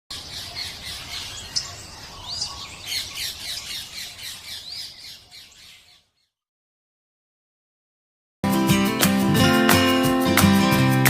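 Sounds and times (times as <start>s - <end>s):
birds chirping: 0.1s - 6.4s.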